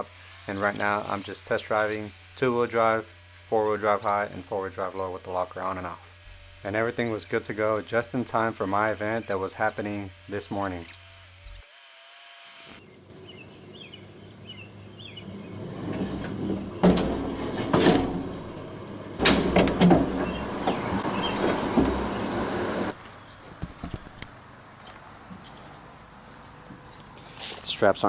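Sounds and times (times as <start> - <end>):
engine and drivetrain rumble: 12.8 - 23.0
loud knocks and rattles: 13.1 - 23.0
clicks: 15.2 - 23.0.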